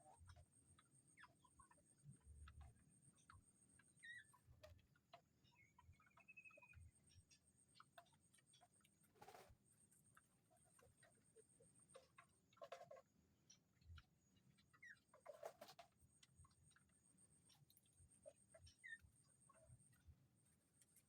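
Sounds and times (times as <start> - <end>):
faint ticks and clicks: 0.0 - 21.0
faint rustle: 9.0 - 9.7.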